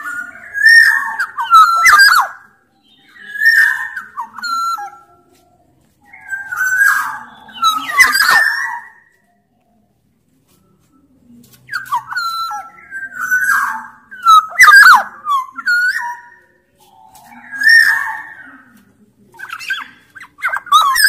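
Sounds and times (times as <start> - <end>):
bird singing whistled notes: 0.0 - 5.1, 6.0 - 9.2, 11.7 - 18.7.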